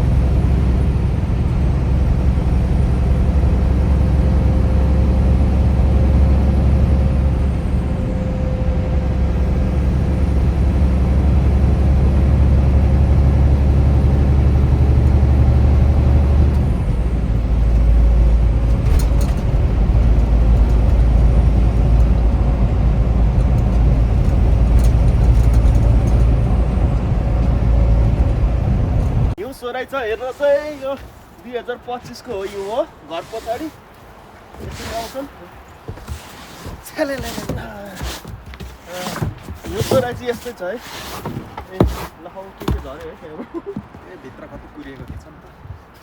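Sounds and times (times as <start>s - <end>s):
road and engine rumble inside car: 0.0s - 29.4s.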